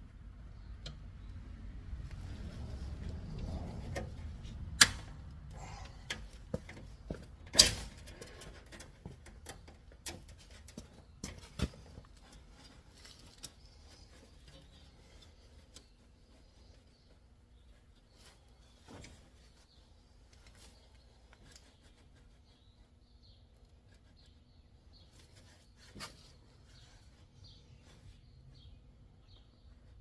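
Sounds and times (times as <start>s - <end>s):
light metal clicks and taps: 0.8s - 1.1s.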